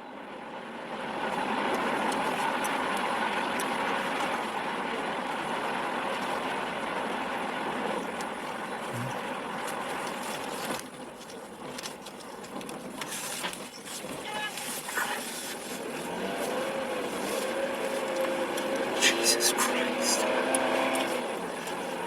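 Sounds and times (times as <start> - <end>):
vehicle road noise rushing: 14.1 - 22.0.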